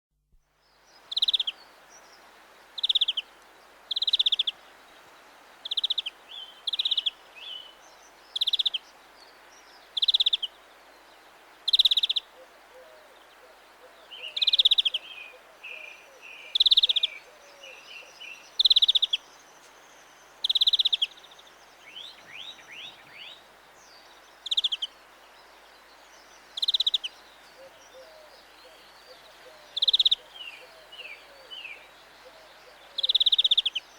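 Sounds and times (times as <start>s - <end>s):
soft bird chirps: 0.7s - 13.3s, 14.0s - 33.9s
greenfinch buzzy call: 1.1s - 1.6s, 26.6s - 27.1s.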